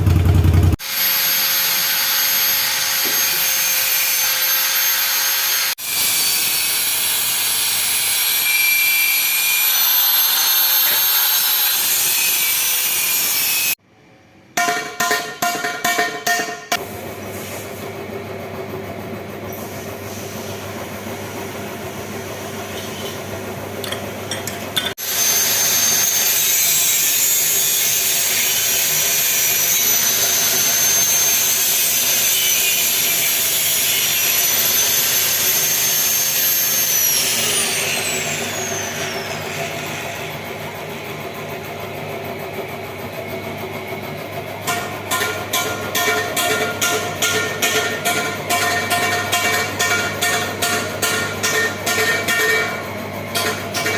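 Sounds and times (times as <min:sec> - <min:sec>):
power tool whining: 0:00.7 - 0:13.8, 0:24.9 - 0:40.4
workshop low hum: 0:13.7 - 0:53.9.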